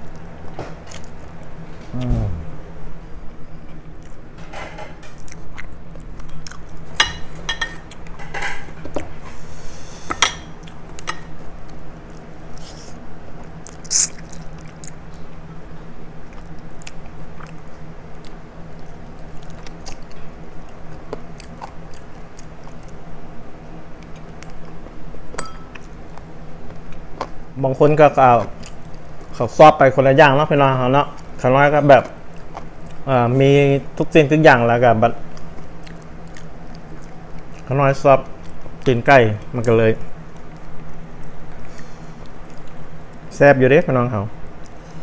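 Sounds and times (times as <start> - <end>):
person chewing and gnawing: 0.0 - 2.4, 5.1 - 7.0, 10.6 - 15.3, 16.2 - 23.0, 24.0 - 27.5, 28.3 - 29.3, 32.0 - 33.1, 35.2 - 37.7, 39.6 - 43.3
steady low hum: 0.0 - 45.0.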